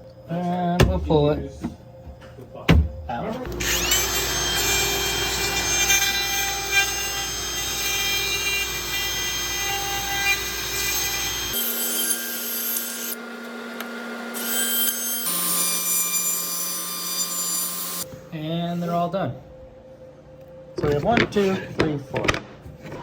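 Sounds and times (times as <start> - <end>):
power tool motors whining: 3.5 - 18.0.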